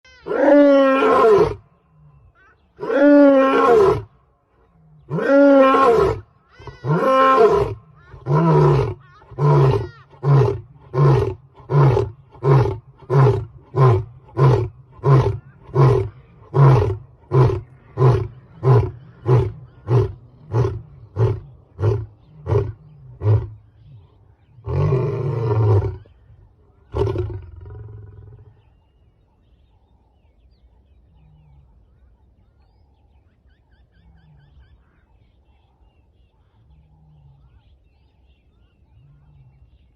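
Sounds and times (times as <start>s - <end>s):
big cat roaring: 6.9s - 26.1s, 26.9s - 28.6s.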